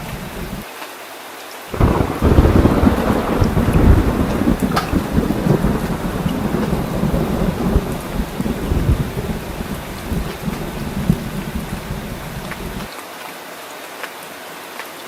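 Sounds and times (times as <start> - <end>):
low rumble of thunder: 0.0 - 0.6, 1.8 - 12.9
rain falling: 0.0 - 15.0.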